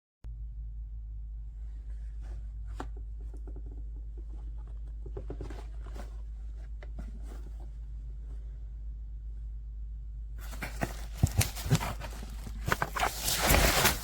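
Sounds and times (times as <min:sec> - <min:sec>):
steady low hum: 0:00.3 - 0:14.0
soft handling clicks and rustles: 0:01.7 - 0:08.6, 0:10.4 - 0:14.0.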